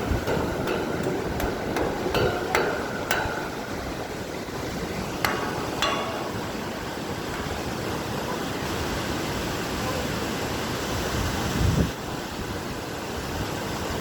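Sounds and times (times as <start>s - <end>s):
sharp ringing knocks: 0.0s - 8.5s.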